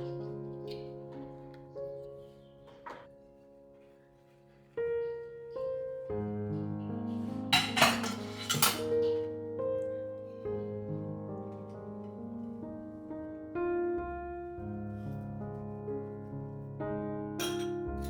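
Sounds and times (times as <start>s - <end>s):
soft solo piano music: 0.0s - 18.0s.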